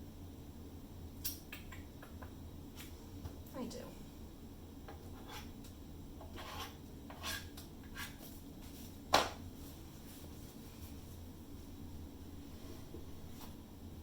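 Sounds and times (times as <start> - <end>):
faint low hum: 0.0 - 14.0
rubbing or scraping strokes: 5.1 - 5.6, 6.2 - 9.0.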